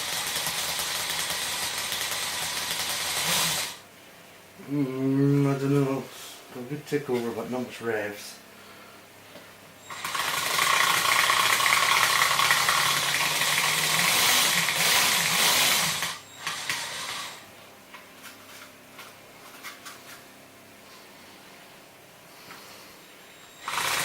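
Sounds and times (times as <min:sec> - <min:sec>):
mechanical engine sound rattle: 0:00.0 - 0:03.8, 0:09.9 - 0:17.4, 0:23.5 - 0:24.0.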